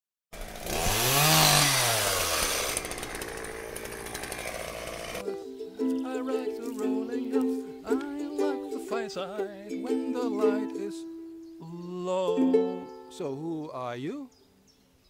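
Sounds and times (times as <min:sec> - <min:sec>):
chainsaw revving: 0:00.4 - 0:05.3
plucked ukulele music: 0:05.2 - 0:13.5.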